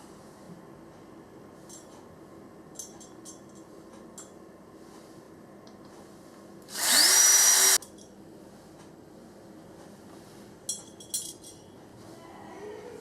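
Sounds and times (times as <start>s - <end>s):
power drill whining: 6.7s - 7.8s.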